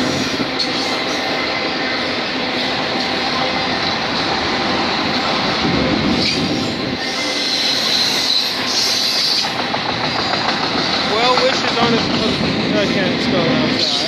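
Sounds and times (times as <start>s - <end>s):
high wheel squeal: 0.0s - 4.3s, 6.1s - 10.7s
steel wheels rumbling on rail: 0.0s - 14.0s.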